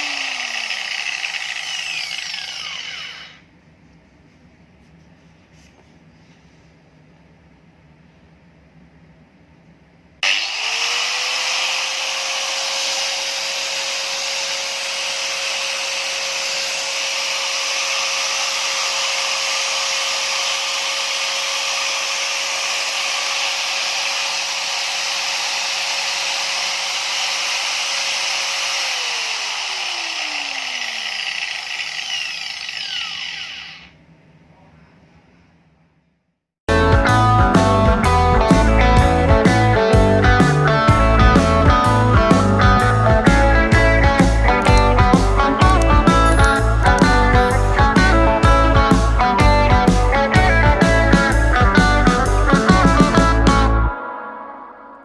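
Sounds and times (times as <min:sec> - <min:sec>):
angle grinder whining: 0:00.0 - 0:03.5, 0:10.2 - 0:34.0, 0:41.0 - 0:54.0.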